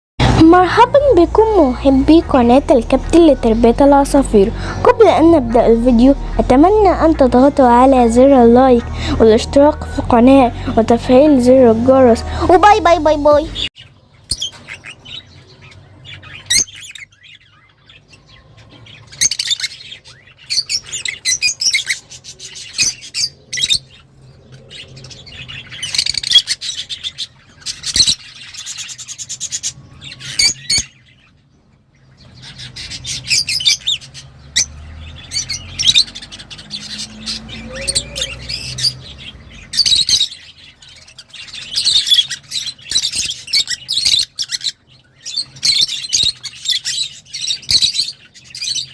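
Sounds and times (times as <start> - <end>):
lovebirds chirping and squawking: 0.2 - 48.9.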